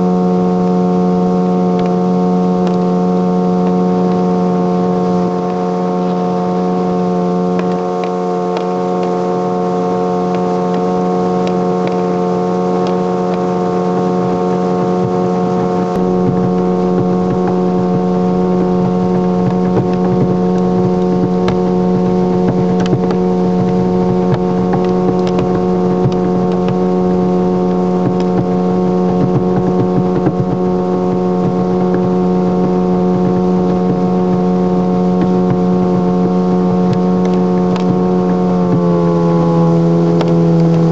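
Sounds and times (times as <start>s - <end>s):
boat engine droning hum: 0.0s - 40.9s.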